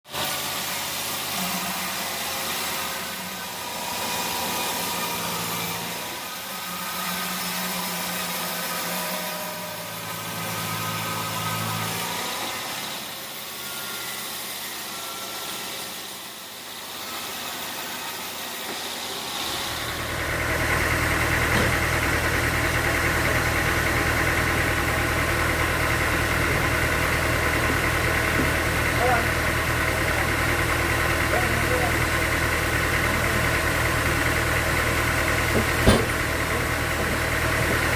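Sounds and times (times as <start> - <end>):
steady engine drone: 0.1 - 37.9
engine humming: 19.4 - 37.9.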